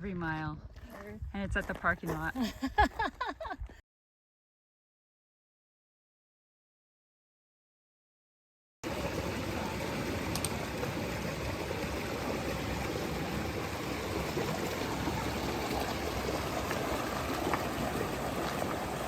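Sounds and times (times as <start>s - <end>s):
creek water flowing: 8.8s - 19.0s.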